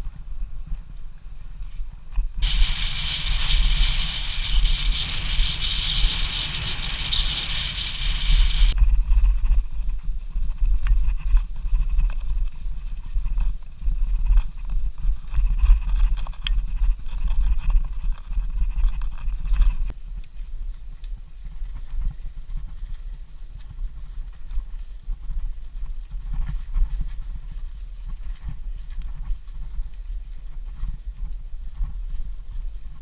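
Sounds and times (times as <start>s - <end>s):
wind buffeting microphone: 0.0s - 33.0s
bike clicks and rattles: 2.2s - 10.0s
high hissing buzz: 2.4s - 8.8s.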